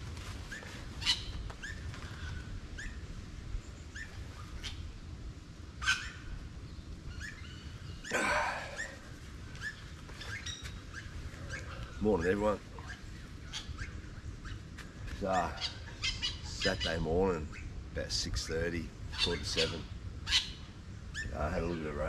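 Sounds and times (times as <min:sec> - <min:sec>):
birds chirping: 0:00.4 - 0:22.0
loud harsh bird call: 0:07.2 - 0:12.3.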